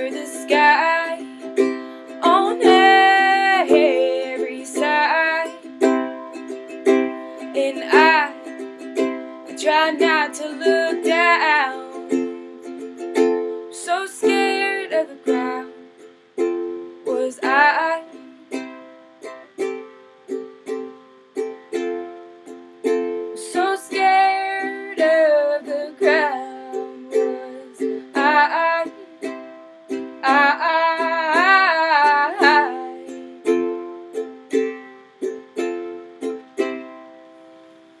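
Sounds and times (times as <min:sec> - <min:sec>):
acoustic folk song: 0:00.0 - 0:38.0.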